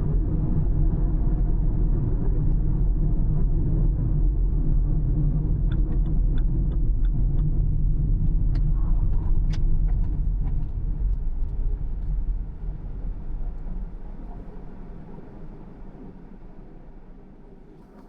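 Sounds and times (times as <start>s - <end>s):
car tyres and engine rumbling: 17.6s - 18.0s.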